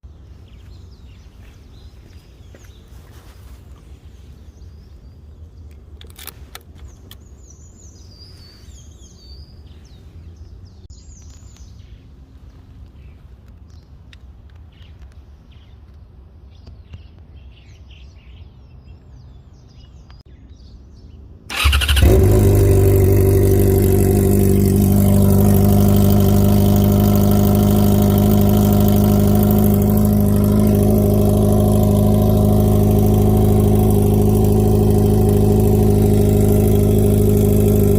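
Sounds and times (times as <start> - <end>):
birds chirping: 0.0 - 37.9
car engine starting and running: 21.5 - 37.9.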